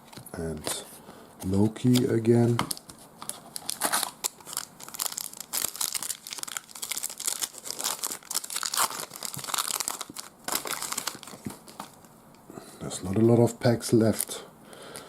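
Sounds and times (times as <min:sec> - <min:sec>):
wrapper crinkling and tearing: 0:01.8 - 0:12.0.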